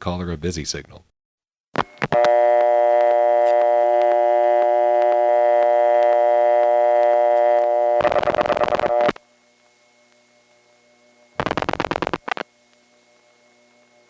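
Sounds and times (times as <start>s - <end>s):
faint line hum: 1.8s - 14.0s
telephone dial tone: 2.1s - 9.2s.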